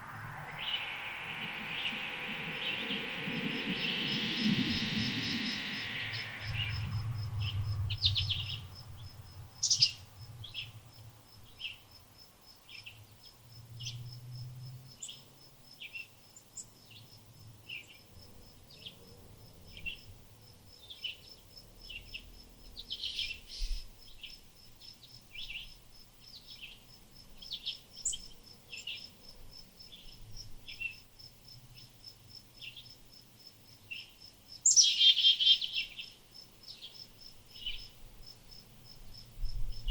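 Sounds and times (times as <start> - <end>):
faint low rumble: 0.0 - 11.4
cricket pulsing: 0.0 - 11.7, 16.3 - 39.9
small birds chirping: 0.0 - 12.0, 20.8 - 29.2, 33.8 - 38.0.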